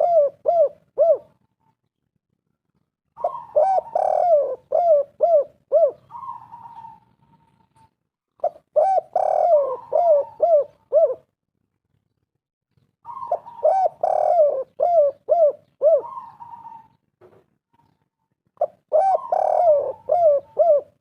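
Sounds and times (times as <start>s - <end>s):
dove cooing: 0.0s - 1.5s, 3.2s - 11.3s, 13.0s - 17.0s, 18.6s - 21.0s.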